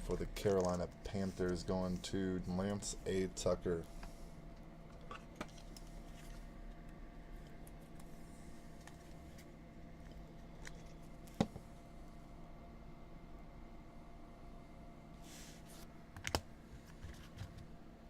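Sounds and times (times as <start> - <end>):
faint clicks and handling noises: 0.0 - 11.7, 15.8 - 17.7
steady low hum: 0.0 - 18.0.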